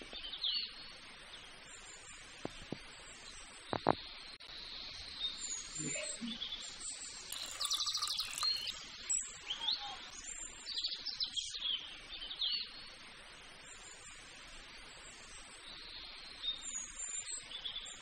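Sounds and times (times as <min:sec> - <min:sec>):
birds chirping: 0:03.7 - 0:12.8.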